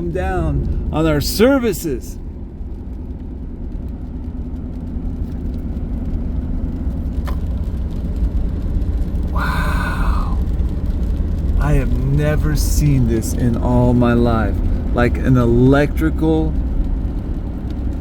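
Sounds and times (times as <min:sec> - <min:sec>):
car cabin road and engine rumble: 0:00.0 - 0:18.0
faint hum: 0:09.3 - 0:10.5
small tick: 0:16.7 - 0:18.0.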